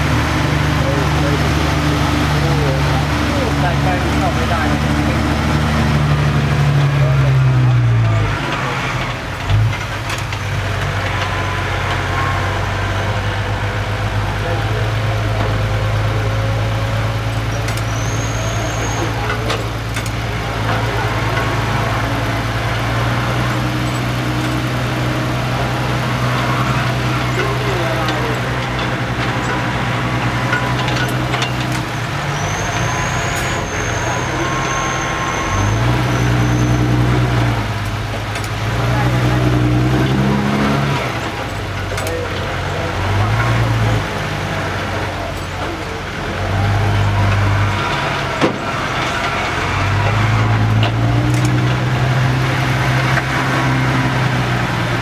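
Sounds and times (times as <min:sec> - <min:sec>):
dump truck diesel engine running: 0:00.0 - 0:55.0.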